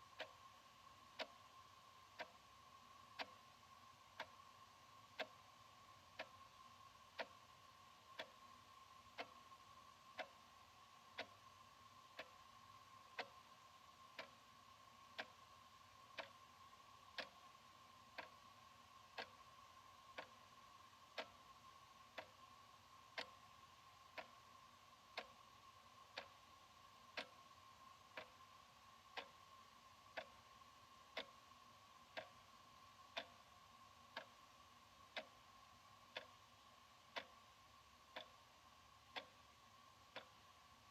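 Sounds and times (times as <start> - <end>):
faint high hum: 0.0 - 40.9
wall clock ticking: 0.0 - 40.9.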